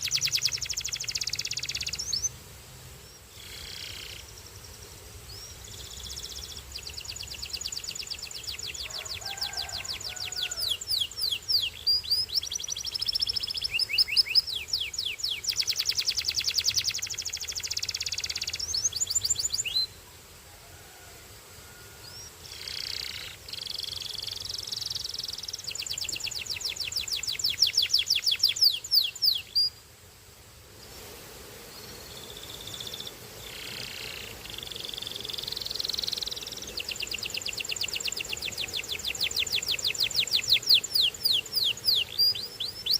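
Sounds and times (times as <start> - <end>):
canary singing trills: 0.0 - 2.4, 5.3 - 20.0, 22.0 - 29.8, 32.1 - 42.9.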